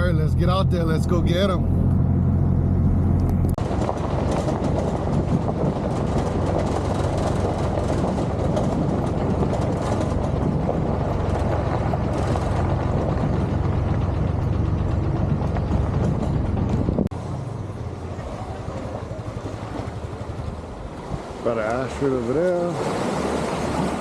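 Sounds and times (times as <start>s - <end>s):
vehicle driving on rough road: 0.0s - 24.0s
rattling: 1.0s - 17.1s.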